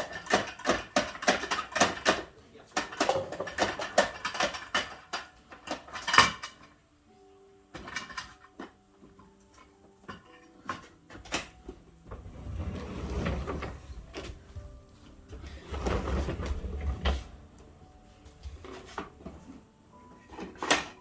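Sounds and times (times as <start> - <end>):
plastic toy clicks and knocks: 0.0 - 6.8.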